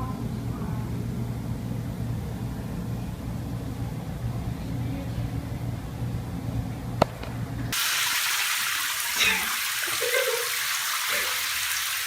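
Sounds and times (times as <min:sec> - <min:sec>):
low steady hum: 0:00.0 - 0:07.8
running water from a tap: 0:07.8 - 0:12.0.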